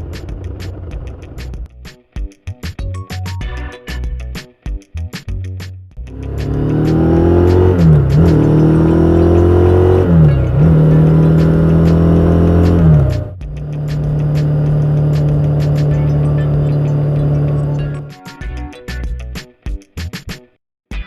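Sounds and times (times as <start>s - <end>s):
motorcycle engine accelerating: 6.1s - 18.1s.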